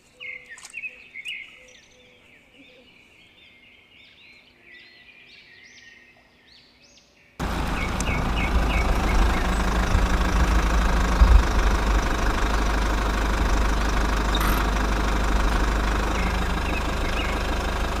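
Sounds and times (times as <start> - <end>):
birds chirping: 0.1 - 18.0
engine rumbling: 7.4 - 18.0.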